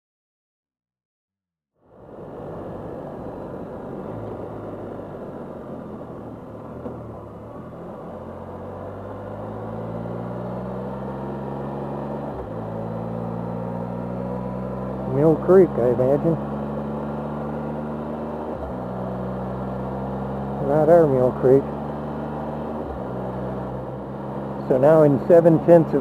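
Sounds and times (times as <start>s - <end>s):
road and wind noise: 1.8s - 26.0s
motorcycle engine running: 3.6s - 26.0s.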